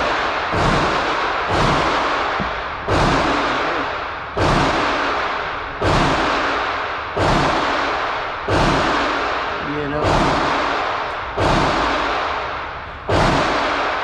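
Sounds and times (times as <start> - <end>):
gunshots with echoing decay: 0.0 - 14.0.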